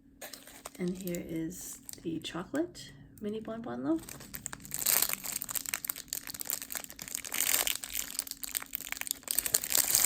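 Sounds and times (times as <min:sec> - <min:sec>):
plastic packaging crinkling: 0:00.2 - 0:02.1, 0:03.9 - 0:10.0.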